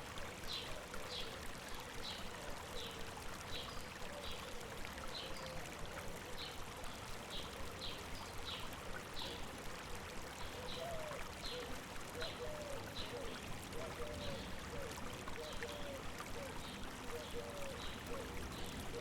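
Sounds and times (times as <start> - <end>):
stream running: 0.0 - 19.0.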